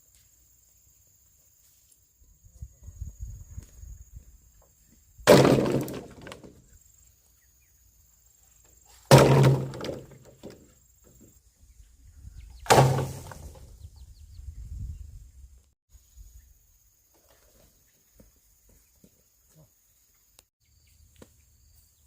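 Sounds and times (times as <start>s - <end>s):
blade chopping bamboo: 5.3s - 6.5s, 9.1s - 10.6s, 12.7s - 13.6s
bamboo stalk rattling: 5.3s - 6.6s, 9.1s - 10.7s, 12.7s - 13.6s.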